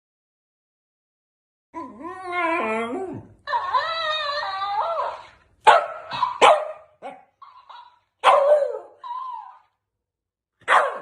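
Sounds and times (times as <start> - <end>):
dog barking: 5.6 - 7.3, 8.2 - 9.0, 10.6 - 11.0.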